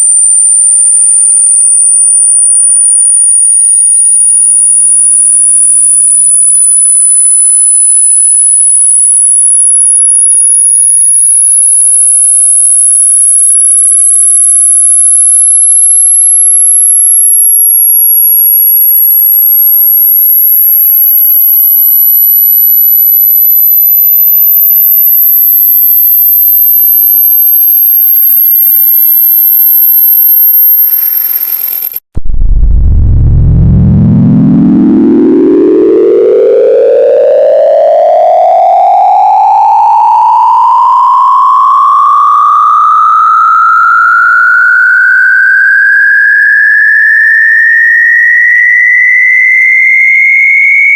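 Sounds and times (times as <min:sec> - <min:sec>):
high-pitched electronic sine tone: 0:00.0 - 0:50.9
faint gliding whistling tones: 0:00.1 - 0:32.0.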